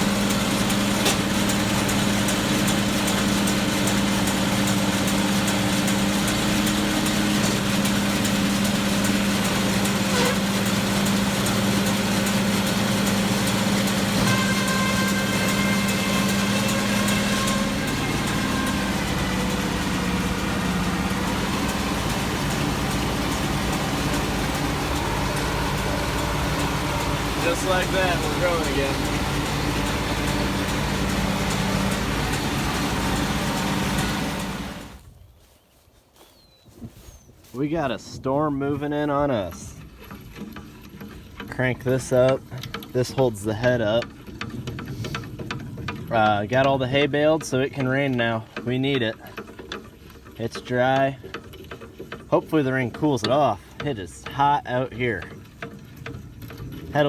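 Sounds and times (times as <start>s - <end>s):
baler dumping bale: 0.0s - 35.0s, 37.5s - 57.0s
tractor diesel engine running: 0.0s - 57.0s
high steady whine: 21.5s - 35.0s.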